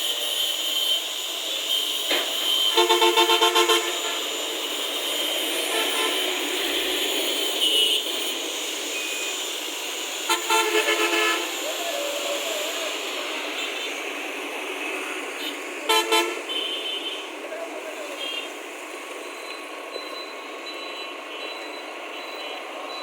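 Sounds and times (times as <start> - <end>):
road traffic: 0.0 - 23.0
vehicle horn short toots: 0.2 - 8.4, 10.3 - 11.6, 15.4 - 17.2.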